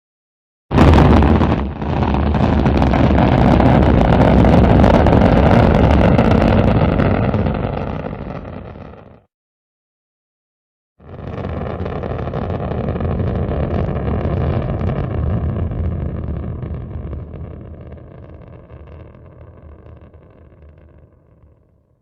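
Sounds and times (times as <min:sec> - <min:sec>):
rocket engine roar: 0:00.7 - 0:09.0, 0:11.1 - 0:21.1.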